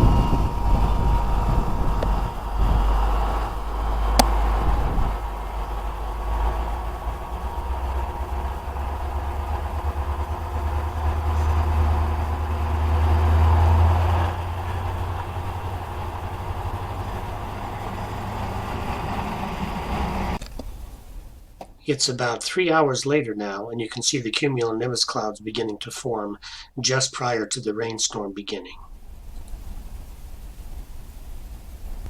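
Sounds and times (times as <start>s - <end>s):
air conditioner compressor hum: 0.0s - 26.9s, 28.8s - 32.0s.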